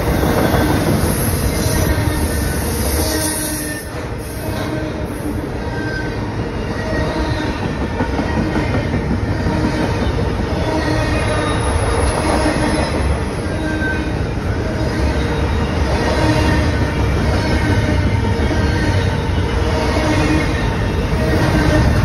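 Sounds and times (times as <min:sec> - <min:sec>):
freight train wheels rumbling: 0:00.0 - 0:22.0.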